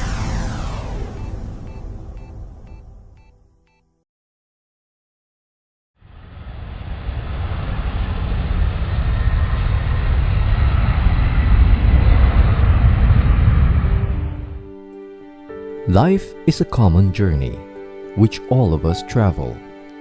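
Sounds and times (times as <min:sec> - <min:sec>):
jet engines rumbling: 0:00.0 - 0:02.7, 0:06.2 - 0:16.8.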